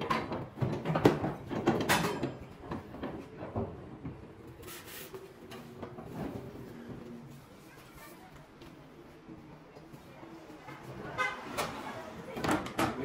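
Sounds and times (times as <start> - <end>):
brief rustling hiss: 4.6 - 5.2.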